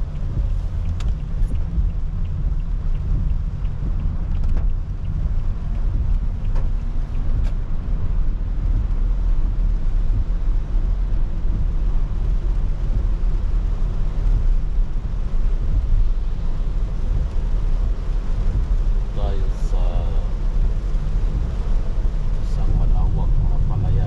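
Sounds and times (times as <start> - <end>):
faint ticks: 0.0 - 7.7
rain hiss: 0.0 - 24.0
tyres and engine rumble: 0.0 - 24.0.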